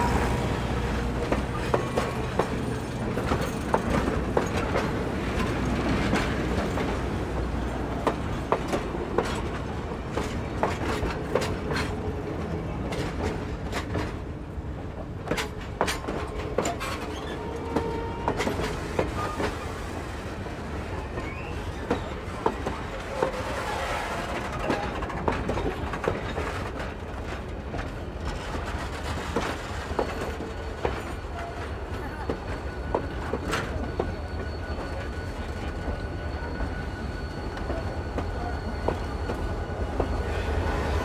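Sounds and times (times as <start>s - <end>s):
train rumble: 0.0s - 41.0s
train wheels clicking over rail joints: 0.2s - 40.3s
wheel squeals: 15.9s - 19.9s, 20.9s - 26.6s, 29.6s - 41.0s.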